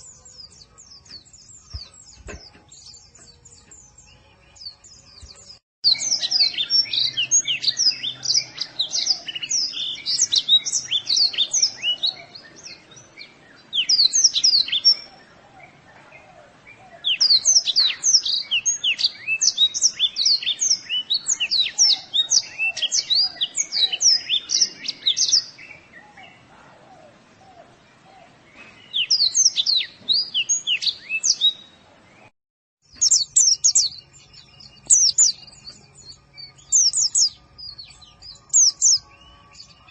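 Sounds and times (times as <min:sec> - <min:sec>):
bird high sweeping chirps: 0:00.0 - 0:15.3, 0:32.8 - 0:39.9.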